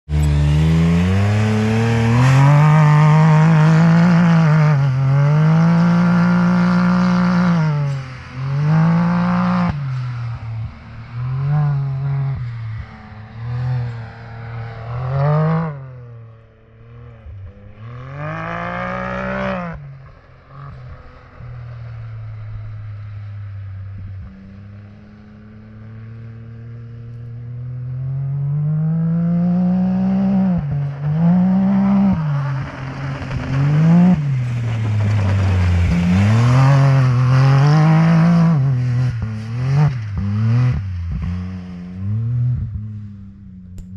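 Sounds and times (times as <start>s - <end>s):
engine revving in bursts: 0.1s - 9.8s.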